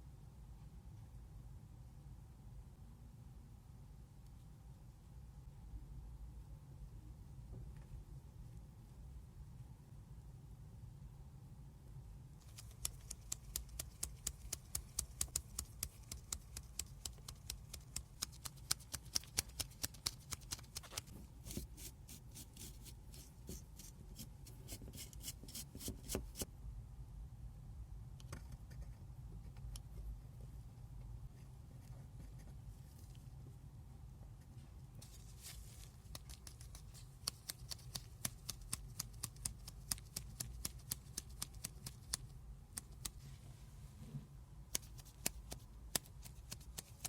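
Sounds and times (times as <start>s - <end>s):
scattered ticks: 12.4s - 21.0s.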